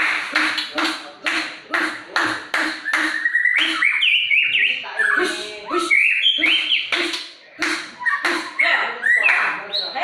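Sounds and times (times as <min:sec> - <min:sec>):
bird harsh notes: 0:00.0 - 0:10.0
bird whistled song: 0:02.8 - 0:07.0, 0:08.0 - 0:10.0.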